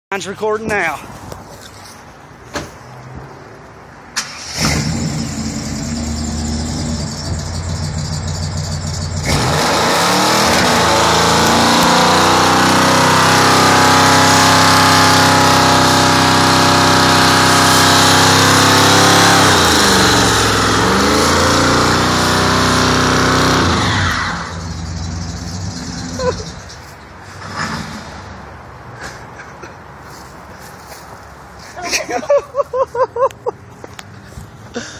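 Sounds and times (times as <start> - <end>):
pickup engine revving: 4.2 - 26.7.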